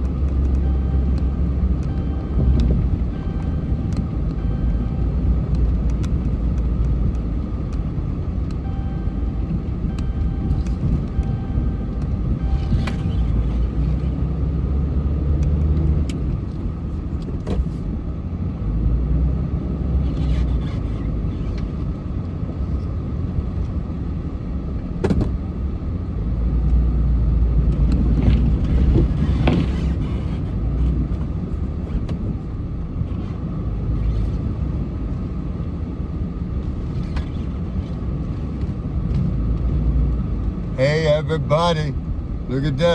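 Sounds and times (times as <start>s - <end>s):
car engine and road rumble: 0.0s - 42.9s.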